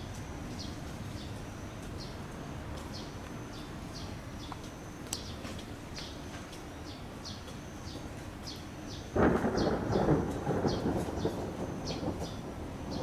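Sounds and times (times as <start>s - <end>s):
small bird chirping: 2.8s - 13.0s.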